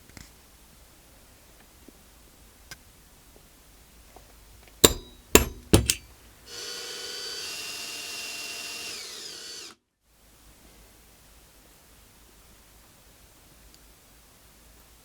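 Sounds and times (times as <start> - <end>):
knocks on workpiece: 4.8 - 6.1
power drill running: 6.5 - 9.8.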